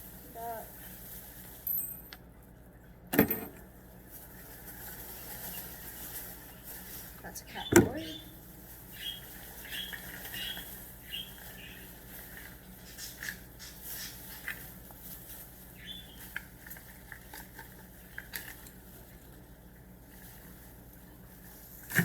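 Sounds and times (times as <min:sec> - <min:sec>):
rustling of packaging: 0:00.0 - 0:02.1, 0:03.8 - 0:22.0
pet bird chirping: 0:07.4 - 0:12.0, 0:15.7 - 0:16.4.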